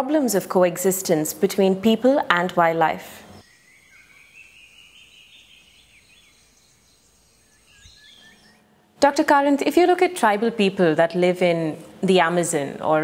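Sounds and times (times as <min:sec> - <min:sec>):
bird chirps: 0:03.3 - 0:08.7
high whistling bird call: 0:03.4 - 0:08.7.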